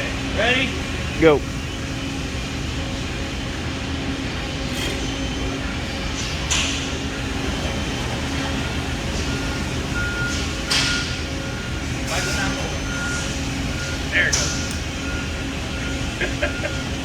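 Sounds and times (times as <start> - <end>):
machine hum: 0.0 - 17.0
thin steady beep tone: 9.2 - 17.0.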